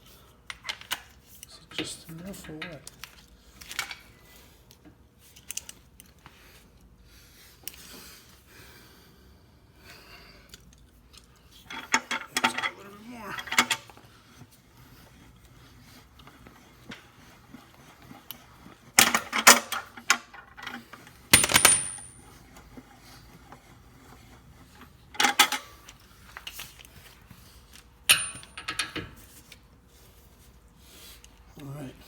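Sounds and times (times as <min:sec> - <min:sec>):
metal tools clinking against metal: 0:21.4 - 0:22.2, 0:28.1 - 0:29.0.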